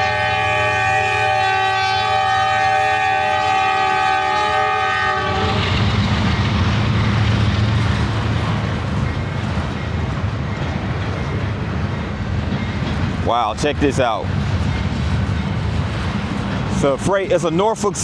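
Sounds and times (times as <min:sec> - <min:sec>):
locomotive air horn: 0:00.0 - 0:05.8
freight train rumbling past: 0:00.0 - 0:18.0.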